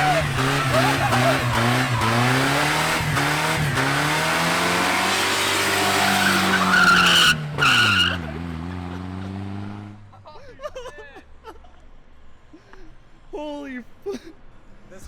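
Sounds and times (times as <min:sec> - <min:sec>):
tyres screeching: 0:00.0 - 0:04.2, 0:04.9 - 0:08.4
car engine revving high: 0:00.0 - 0:10.0.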